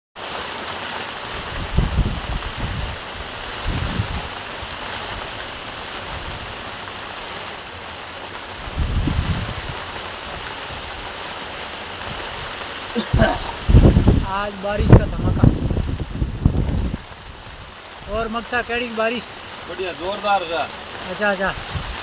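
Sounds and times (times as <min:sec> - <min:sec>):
heavy rain pouring: 0:00.2 - 0:22.0
low rumbles: 0:13.1 - 0:18.8.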